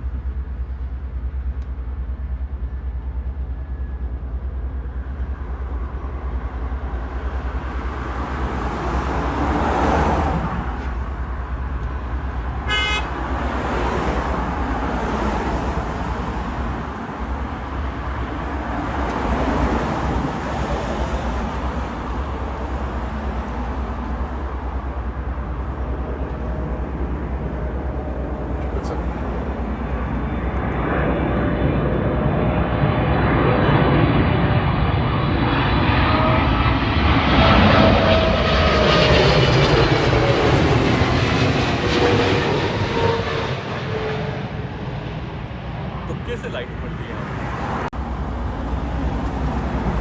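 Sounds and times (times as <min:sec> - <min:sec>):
road traffic passing: 0:00.0 - 0:50.0
car horn toot: 0:12.6 - 0:13.2.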